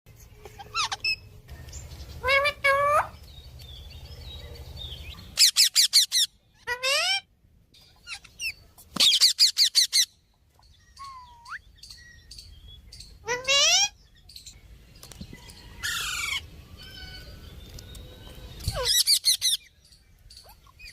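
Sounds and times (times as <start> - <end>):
parrots calling: 0.4 - 1.4, 2.1 - 3.3, 5.0 - 7.3, 7.9 - 10.2, 10.9 - 12.1, 13.0 - 14.1, 15.7 - 17.4, 18.6 - 19.7.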